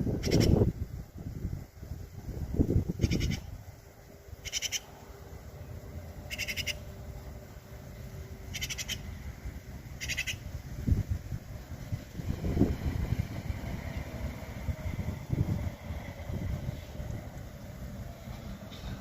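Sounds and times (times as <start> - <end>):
magpie chatter calls: 0.2 - 0.6, 3.0 - 3.5, 4.4 - 4.9, 6.3 - 6.8, 8.4 - 9.2, 9.9 - 10.6.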